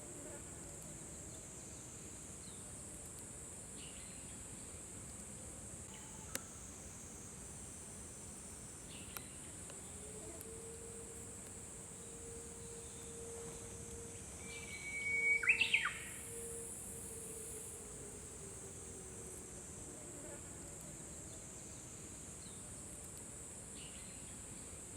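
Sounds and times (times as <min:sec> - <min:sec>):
steady high hiss: 0:00.0 - 0:24.9
bird singing whistled song: 0:14.4 - 0:16.6.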